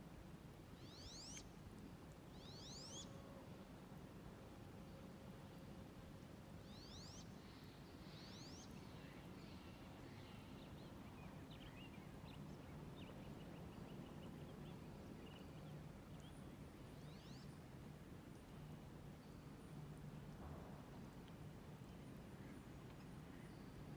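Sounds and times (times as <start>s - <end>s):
faint songbird calls: 0.8s - 1.6s, 2.4s - 3.4s, 6.6s - 17.6s.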